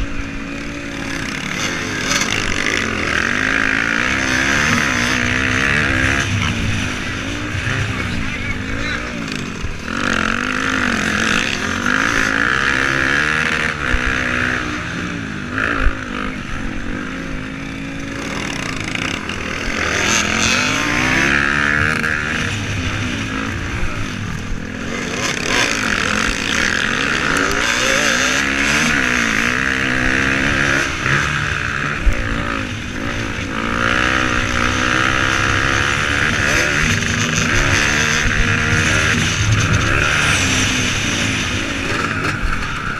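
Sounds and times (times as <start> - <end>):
motocross engines racing: 0.0 - 42.9.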